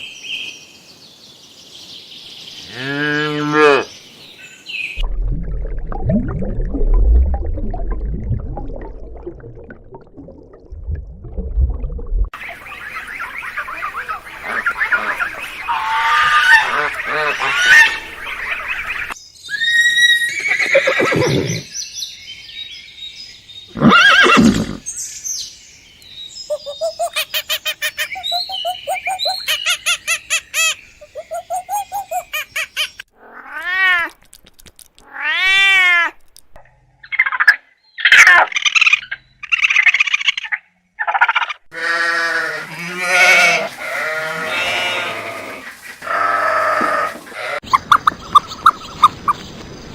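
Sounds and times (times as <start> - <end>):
long arching animal calls: 12.4 - 21.7.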